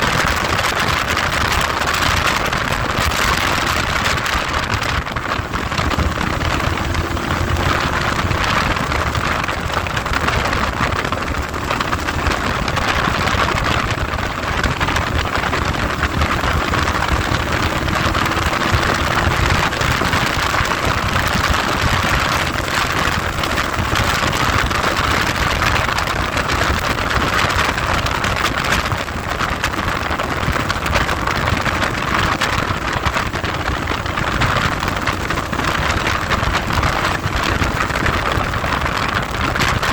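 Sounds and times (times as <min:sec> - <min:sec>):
faint vehicle engine: 0:00.0 - 0:39.9
wind rushing over microphone: 0:00.0 - 0:39.9.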